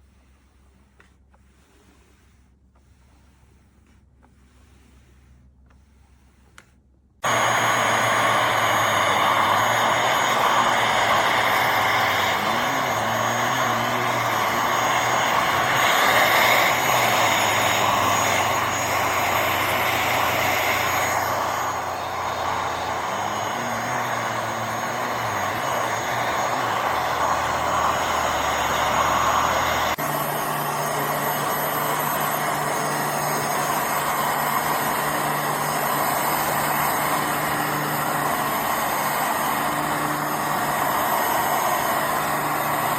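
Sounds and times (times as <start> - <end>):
cleaner motor whirring: 0.1 - 42.9.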